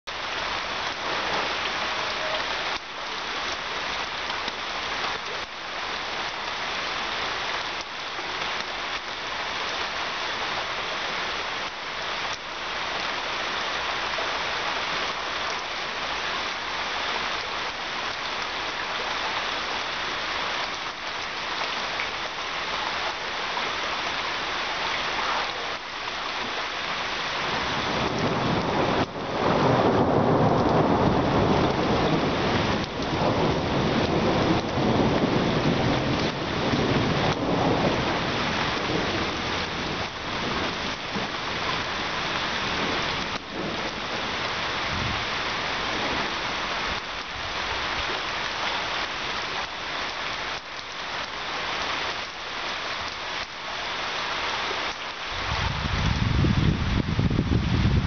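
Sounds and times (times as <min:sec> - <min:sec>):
heavy rain on paving: 0:00.0 - 0:58.0
thunder rumbling: 0:27.4 - 0:46.5.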